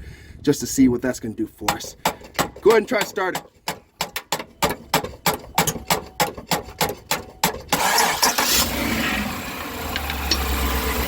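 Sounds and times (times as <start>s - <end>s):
metal taps on starter motor: 1.7s - 7.8s
engine cranking and starting: 5.7s - 11.0s.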